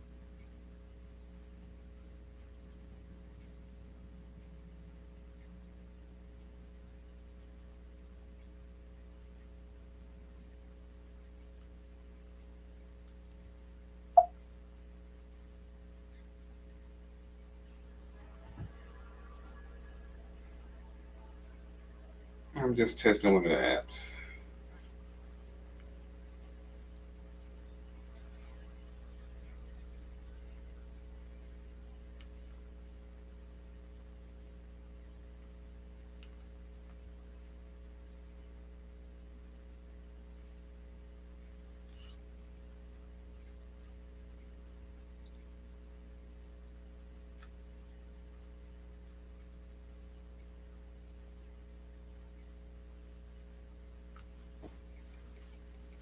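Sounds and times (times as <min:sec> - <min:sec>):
electrical mains hum: 0:00.0 - 0:56.0
faint click: 0:45.2 - 0:45.5.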